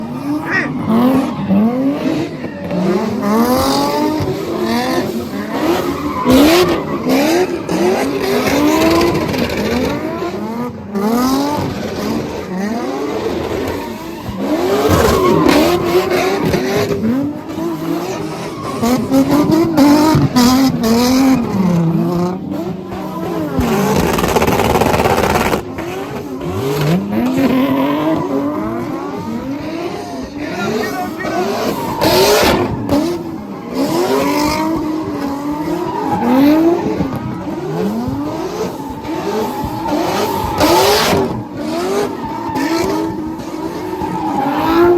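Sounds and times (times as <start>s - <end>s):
car engines revving: 0.0s - 44.9s
tyres squealing: 26.4s - 44.9s.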